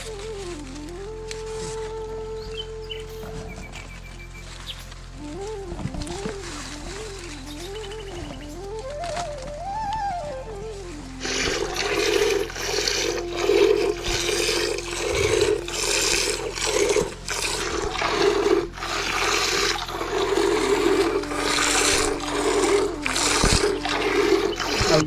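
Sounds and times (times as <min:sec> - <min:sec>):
repeated noisy strokes: 0:10.9 - 0:25.0.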